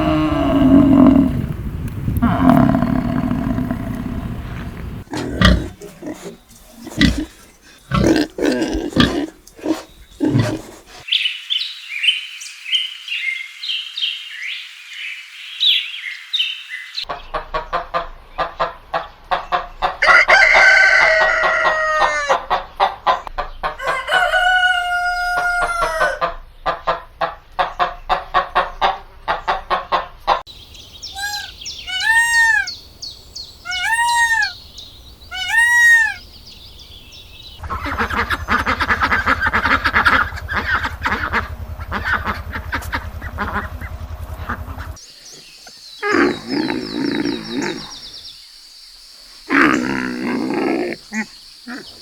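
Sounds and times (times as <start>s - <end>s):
rooster crowing: 0.0s - 1.3s, 20.0s - 22.4s, 23.8s - 26.2s
chickens clucking: 3.0s - 11.1s.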